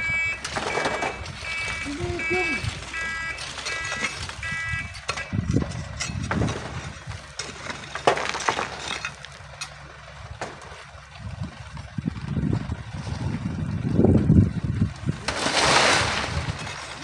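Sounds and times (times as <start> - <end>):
truck reversing alarm beeps: 0.0 - 5.5
wind buffeting microphone: 0.0 - 7.4, 10.2 - 17.0
knocks and scrapes: 2.6 - 9.8, 15.2 - 17.0.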